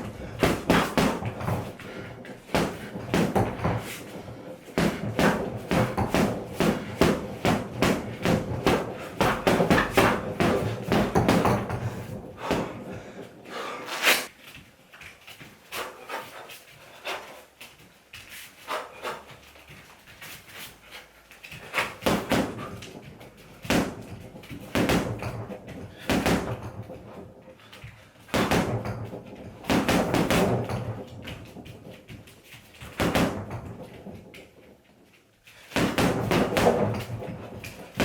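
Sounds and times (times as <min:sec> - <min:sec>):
punches hitting heavy bag: 0:00.0 - 0:13.0, 0:21.6 - 0:27.1, 0:28.3 - 0:31.7, 0:32.8 - 0:34.2, 0:35.7 - 0:38.0.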